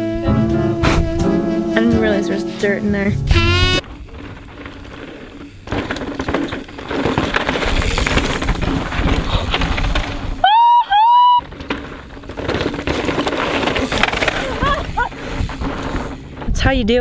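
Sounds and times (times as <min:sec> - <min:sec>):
bike rattling: 0:00.0 - 0:17.0
tyres crunching on stones: 0:03.8 - 0:10.4, 0:11.4 - 0:16.6
person whooping: 0:10.4 - 0:11.4, 0:14.4 - 0:15.1.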